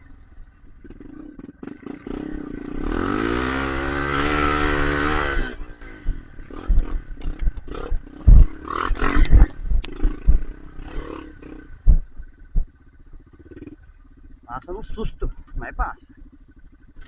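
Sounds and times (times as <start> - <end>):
dirt bike engine revving: 0.0 - 17.0
knocks and heavy thumps: 6.0 - 10.9.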